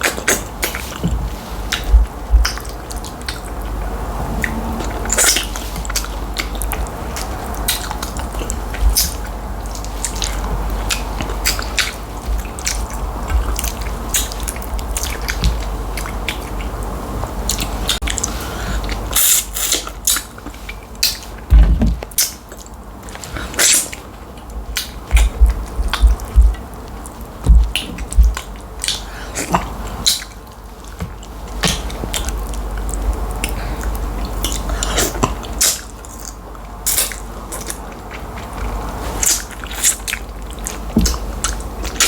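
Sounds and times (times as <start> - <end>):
steady low hum: 0.0 - 42.0
person chewing: 22.1 - 42.0.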